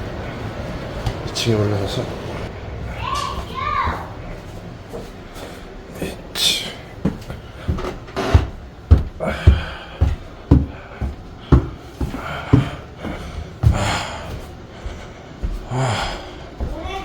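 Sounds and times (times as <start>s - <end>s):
person breathing hard: 6.4s - 16.8s
heavy footsteps on stairs: 6.8s - 17.0s.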